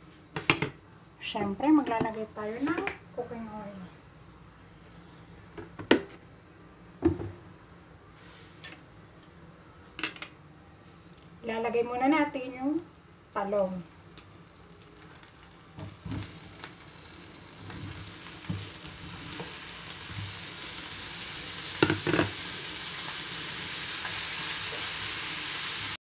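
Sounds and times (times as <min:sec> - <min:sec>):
food sizzling in hot oil: 0:13.4 - 0:26.0.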